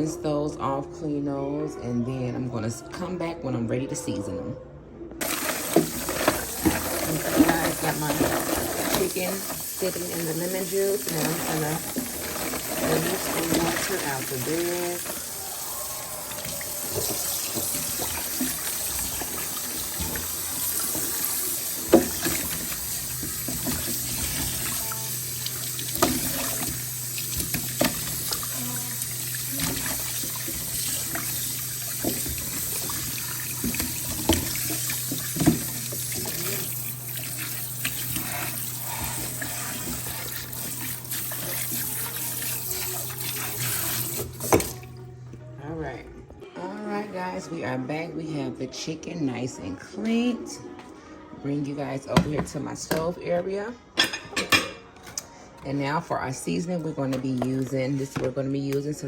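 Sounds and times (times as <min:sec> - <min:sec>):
tap running into sink: 0:16.3 - 0:44.9.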